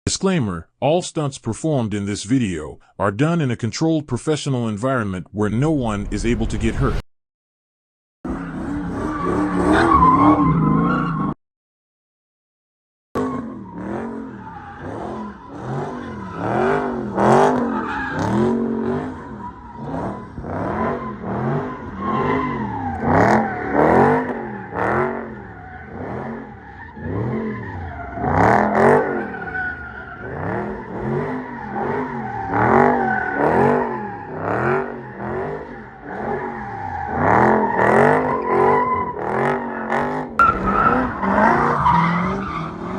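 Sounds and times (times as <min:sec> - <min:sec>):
car engine revving: 0:08.3 - 0:11.3, 0:13.2 - 0:42.9
tyre squeal: 0:20.6 - 0:42.9.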